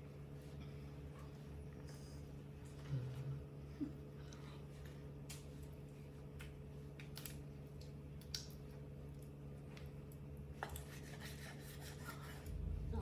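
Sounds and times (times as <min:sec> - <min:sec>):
meat cutting snips and clicks: 0:06.4 - 0:08.6
steady low hum: 0:11.6 - 0:13.0.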